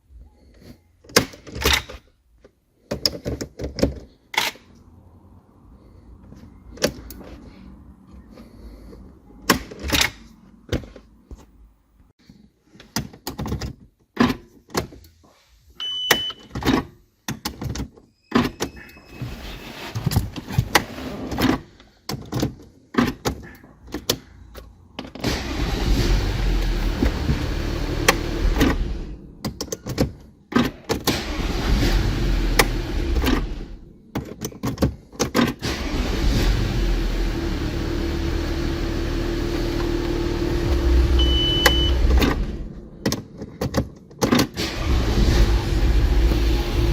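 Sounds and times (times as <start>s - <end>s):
car engine running rumble: 25.2s - 29.6s, 35.7s - 43.5s, 44.6s - 46.9s
brief electronic beep: 41.2s - 42.0s.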